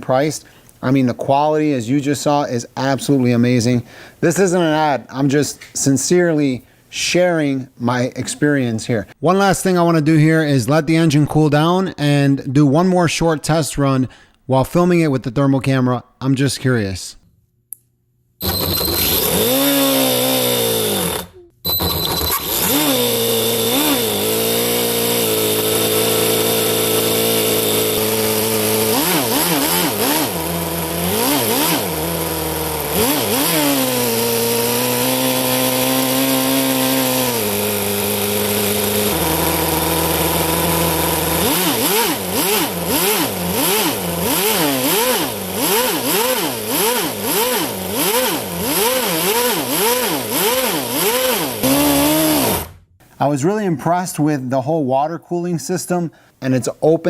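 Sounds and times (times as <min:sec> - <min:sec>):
model nitro engine revving: 0:18.4 - 0:52.8.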